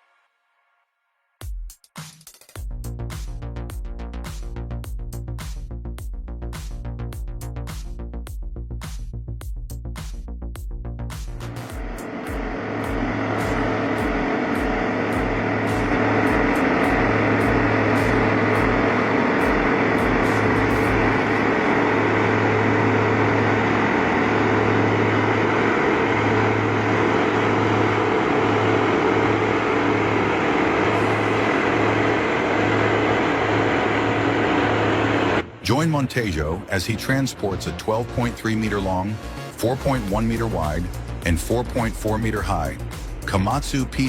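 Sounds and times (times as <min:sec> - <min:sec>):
heavy vehicle engine running: 0:11.4 - 0:44.0.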